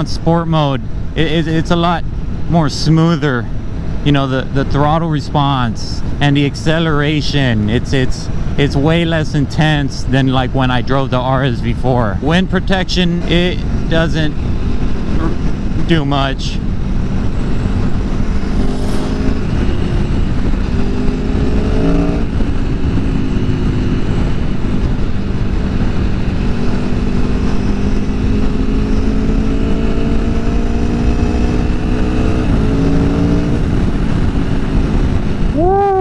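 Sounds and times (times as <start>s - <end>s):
motorcycle engine accelerating: 13.2s - 36.0s
wind on microphone: 13.4s - 36.0s.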